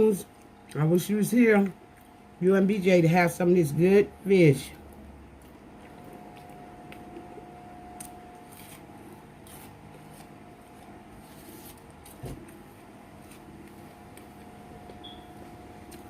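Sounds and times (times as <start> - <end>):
steady background hum: 0.0 - 16.0
faint chewing: 4.8 - 12.6.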